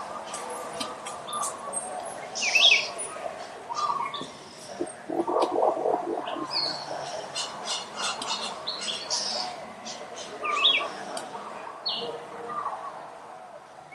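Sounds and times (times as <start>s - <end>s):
low rapid bird notes: 4.8s - 6.9s.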